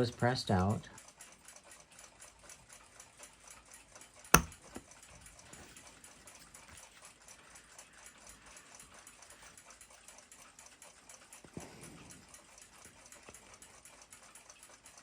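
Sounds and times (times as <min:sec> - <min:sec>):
sharp click: 0:04.4 - 0:04.6.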